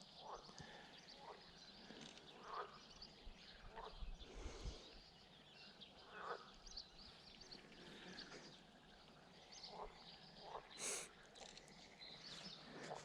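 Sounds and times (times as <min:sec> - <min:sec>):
distant bird chirps and calls: 0:00.0 - 0:13.0.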